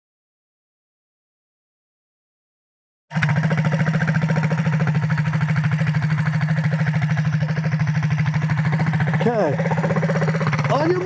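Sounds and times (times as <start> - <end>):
minibike engine idling: 3.1 - 11.0.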